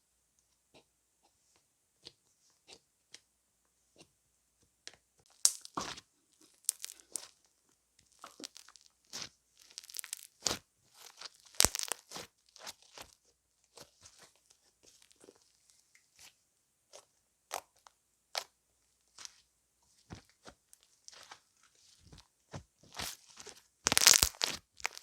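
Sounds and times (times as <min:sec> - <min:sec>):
crisp crunching and crackling: 0:05.3 - 0:07.4, 0:08.1 - 0:15.5, 0:20.1 - 0:25.0.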